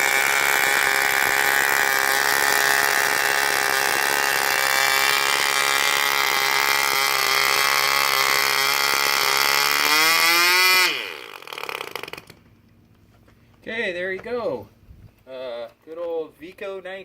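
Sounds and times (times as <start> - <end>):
model glow engine running: 0.0 - 12.4
engine sputtering: 0.0 - 13.3.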